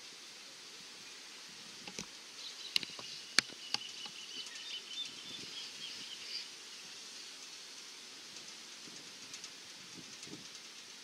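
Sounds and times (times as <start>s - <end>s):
faint background hiss: 0.0s - 11.0s
small bird twittering: 2.4s - 6.6s.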